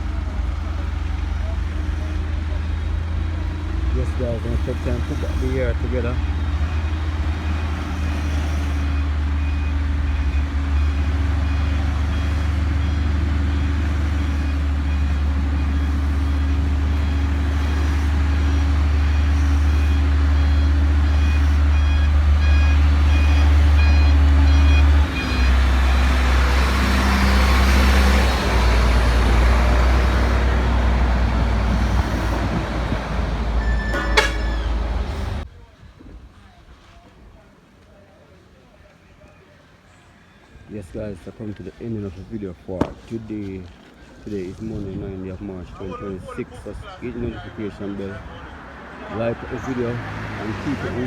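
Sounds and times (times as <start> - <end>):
heavy diesel engine running: 0.0 - 35.5, 44.5 - 51.0
reversing alarm beeping: 1.4 - 30.5, 33.5 - 35.4.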